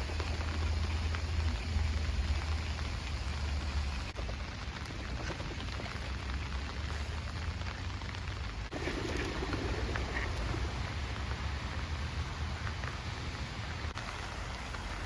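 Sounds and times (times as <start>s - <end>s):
rain falling on a lake: 0.0s - 15.0s.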